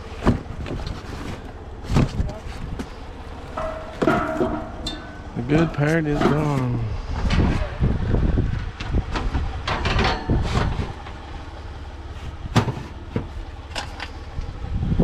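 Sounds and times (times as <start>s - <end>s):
steady low rumble: 0.0s - 15.0s
household items knocking and clattering: 3.6s - 6.6s.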